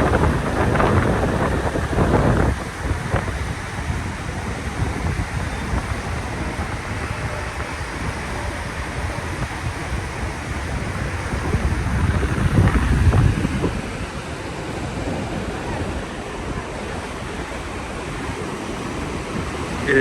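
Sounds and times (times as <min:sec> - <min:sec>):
surf washing: 0:00.0 - 0:20.0
wind buffeting microphone: 0:00.0 - 0:20.0.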